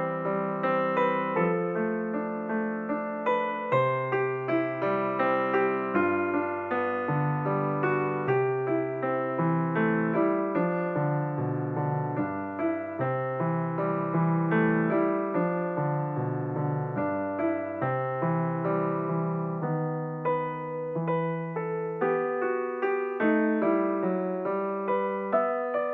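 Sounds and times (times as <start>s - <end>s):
slow gentle piano music: 0.0s - 25.9s.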